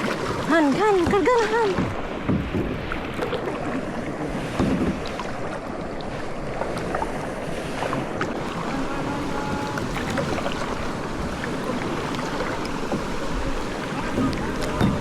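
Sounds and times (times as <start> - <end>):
water splashing around kayak: 0.0 - 15.0
wind noise on microphone: 8.4 - 15.0.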